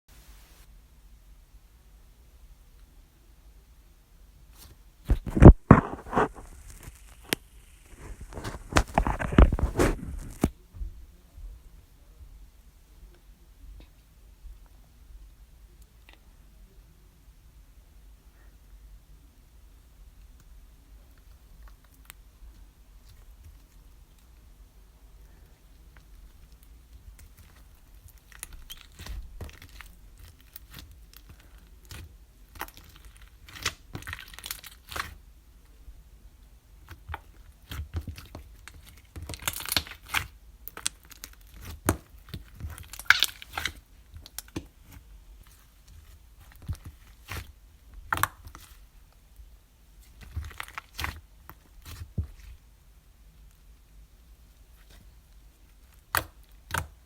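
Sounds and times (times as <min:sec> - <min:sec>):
slime crackling and popping: 0:26.0 - 0:35.2, 0:36.8 - 0:48.9, 0:50.0 - 0:52.6, 0:55.7 - 0:57.0.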